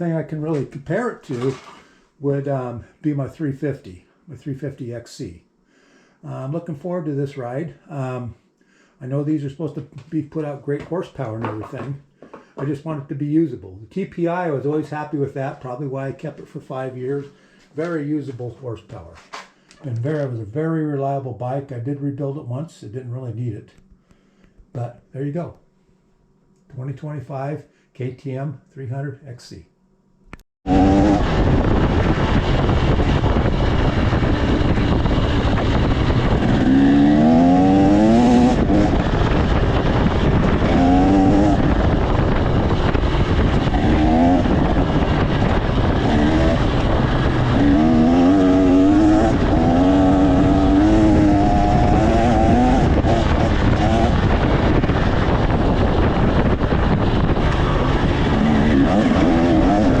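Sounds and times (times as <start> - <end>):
dirt bike engine revving: 30.7 - 60.0
steady rushing noise: 30.7 - 60.0.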